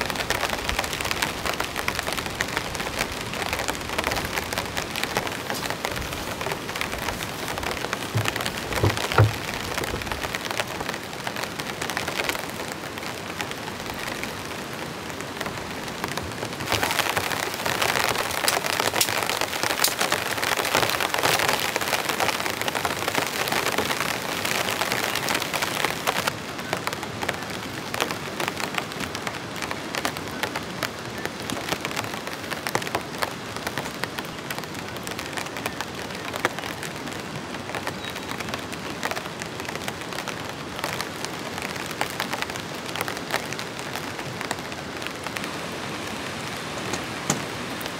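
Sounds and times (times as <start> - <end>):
heavy rain patter: 0.0 - 47.9
dull knocks: 7.0 - 10.3.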